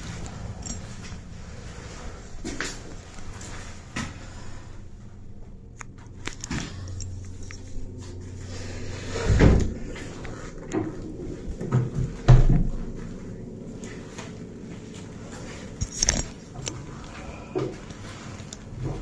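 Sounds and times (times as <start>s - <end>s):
handling noise: 0.0s - 19.0s
dull knocks and thumps: 10.7s - 13.0s.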